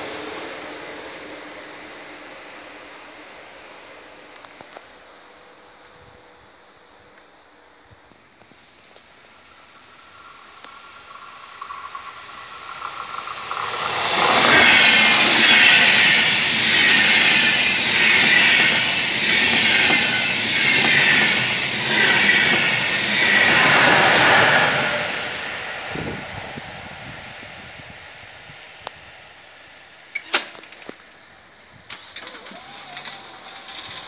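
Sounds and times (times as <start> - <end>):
passenger train passing: 0.0 - 30.2, 31.0 - 34.0
wheels clattering: 30.2 - 34.0.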